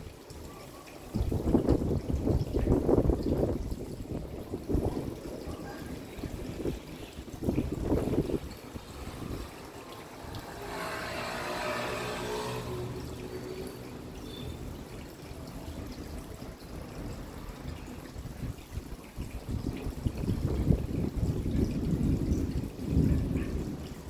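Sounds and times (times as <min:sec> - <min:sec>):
rain falling and trickling: 0:00.0 - 0:24.0.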